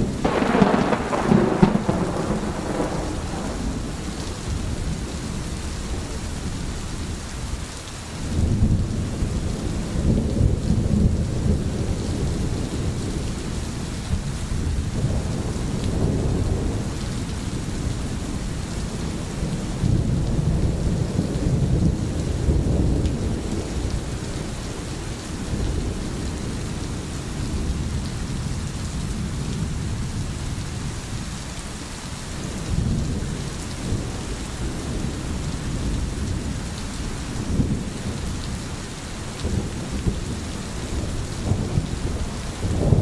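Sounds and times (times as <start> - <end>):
deep thunder rumbling: 0.0 - 6.5, 8.2 - 30.4, 39.3 - 43.0
crackling thunderclap: 0.0 - 6.6, 8.2 - 30.9, 32.4 - 43.0
steady rain: 0.0 - 43.0.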